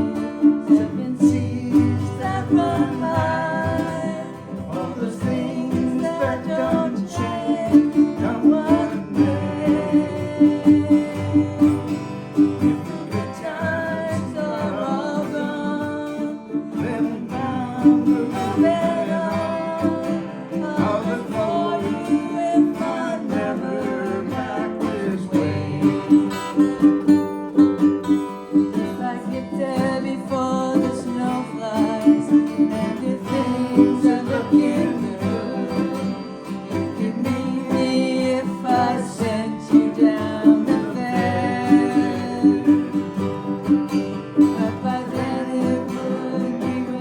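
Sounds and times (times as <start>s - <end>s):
strummed acoustic guitar: 0.0s - 47.0s.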